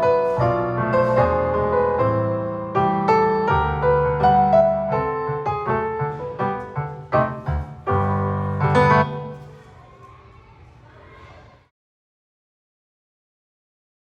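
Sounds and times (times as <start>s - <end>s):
piano music: 0.0s - 9.6s.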